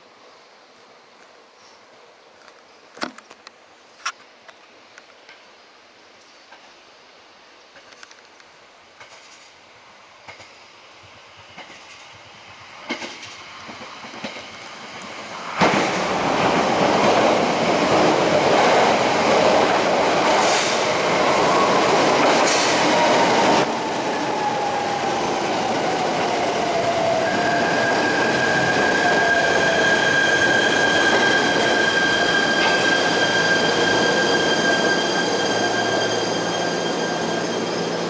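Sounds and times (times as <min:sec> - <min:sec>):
train wheels clicking over rail joints: 0:09.0 - 0:09.5, 0:10.2 - 0:10.6, 0:11.4 - 0:16.2
train rumbling in a tunnel: 0:09.0 - 0:09.6, 0:10.2 - 0:38.0
train whine falling in pitch: 0:21.4 - 0:38.0.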